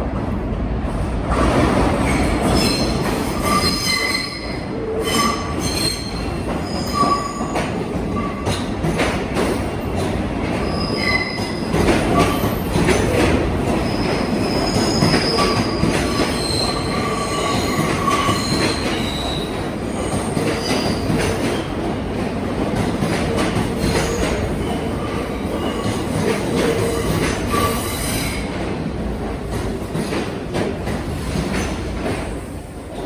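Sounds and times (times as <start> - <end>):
train rumble: 0.0 - 33.0
train wheels squealing: 2.0 - 8.6, 10.6 - 21.7, 23.8 - 28.5.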